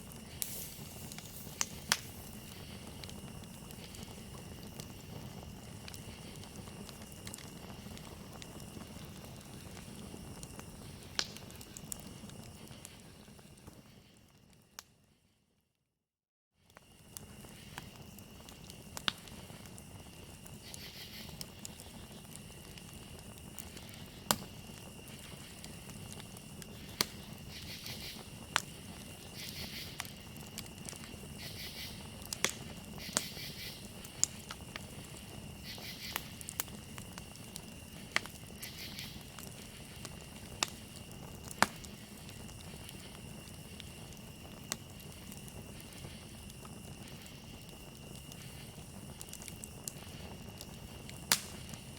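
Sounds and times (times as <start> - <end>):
crickets trilling: 0.0 - 14.8, 16.6 - 51.9
campfire crackling and popping: 0.0 - 14.9, 16.6 - 51.9
pulsed insect chirping: 19.8 - 51.9.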